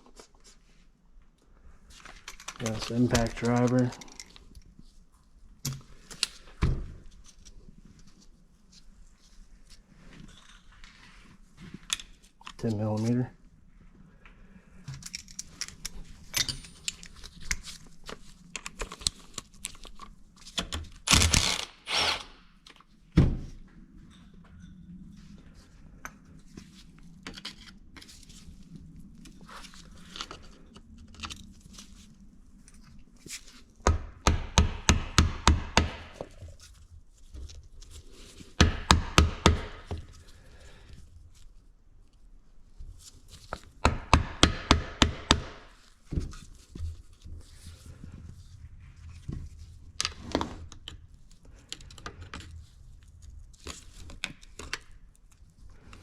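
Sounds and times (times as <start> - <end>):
tools and parts clinking: 2.2 - 4.4, 14.9 - 17.6
impact driver hammering: 21.1 - 22.4.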